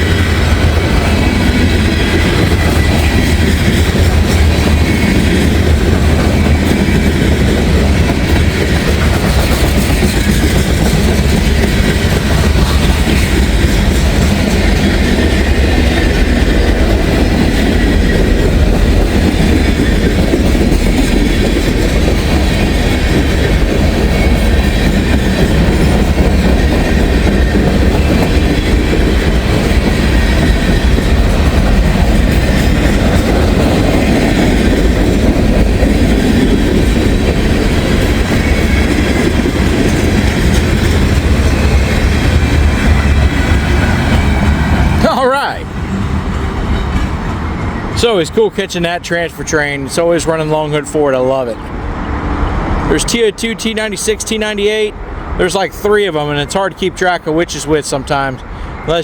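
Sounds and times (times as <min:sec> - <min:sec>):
train wheels clattering over rail joints: 0:00.0 - 0:45.0
freight train rolling past: 0:00.0 - 0:59.0.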